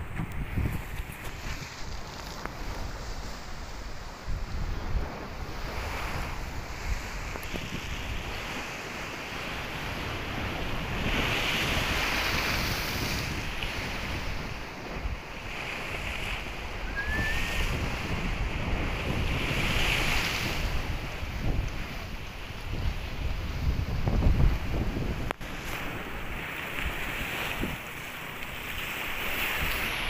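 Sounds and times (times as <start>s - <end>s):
waves breaking on shore: 0.0s - 30.0s
wind buffeting microphone: 0.0s - 30.0s
faint rising chirp: 16.8s - 17.5s.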